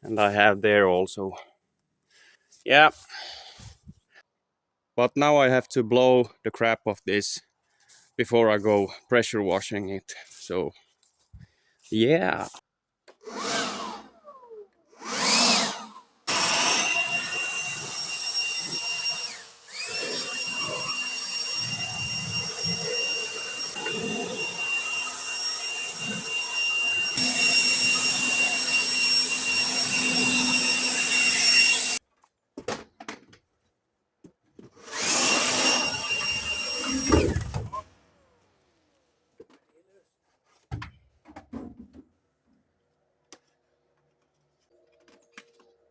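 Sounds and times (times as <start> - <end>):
blower rushing air with whine: 16.4 - 32.0.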